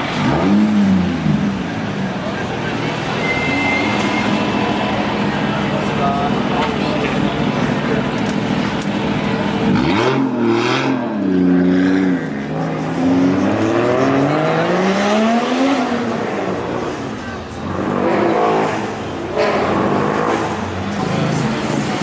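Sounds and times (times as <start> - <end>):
car engine revving and accelerating: 0.0 - 1.9, 8.3 - 22.0.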